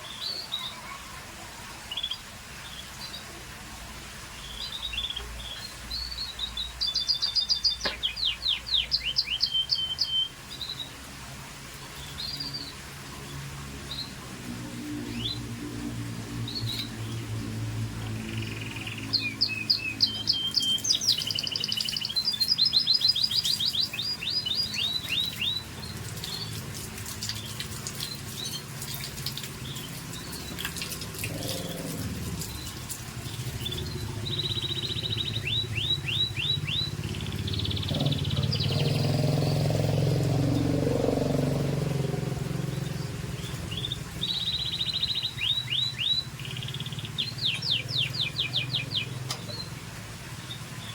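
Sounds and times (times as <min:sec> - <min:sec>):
canary singing: 0:04.5 - 0:10.9, 0:18.1 - 0:26.6, 0:29.5 - 0:49.8.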